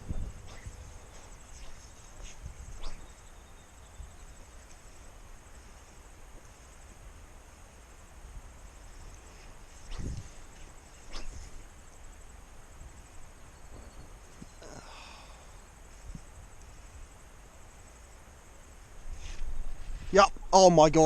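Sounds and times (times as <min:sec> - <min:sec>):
low outdoor rumble: 0:00.0 - 0:19.0
insects chirping: 0:00.0 - 0:21.0.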